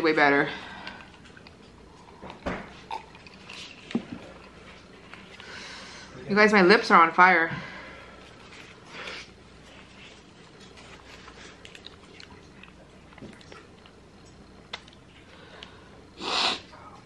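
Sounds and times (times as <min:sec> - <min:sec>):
chewing and mouth sounds: 0:00.8 - 0:05.5, 0:08.2 - 0:15.8.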